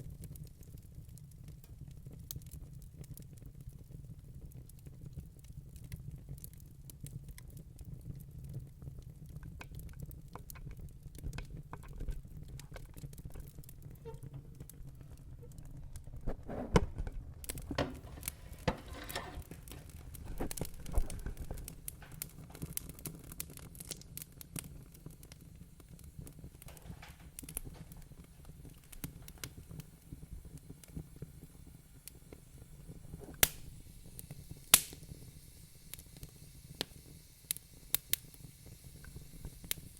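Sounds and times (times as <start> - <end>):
low rumble of flames: 0.0 - 39.9
wood fire crackling: 0.0 - 39.9
sharp pops of fire: 9.2 - 39.9.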